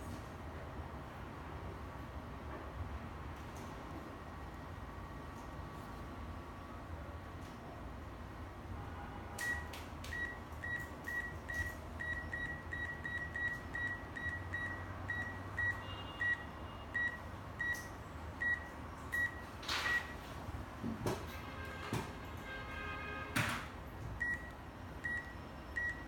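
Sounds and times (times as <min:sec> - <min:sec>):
barcode scanner beeps: 0:09.4 - 0:20.2, 0:24.2 - 0:26.0.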